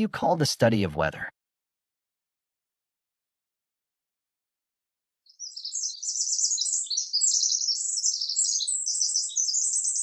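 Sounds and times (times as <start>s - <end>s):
high-pitched bird-like chirping: 5.3s - 10.0s.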